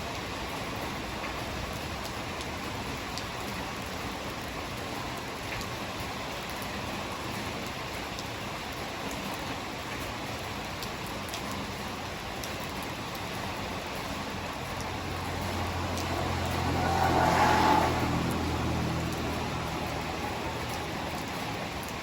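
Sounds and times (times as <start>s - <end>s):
heavy rain: 0.0s - 22.0s
vehicle engine hum passing: 13.4s - 22.0s.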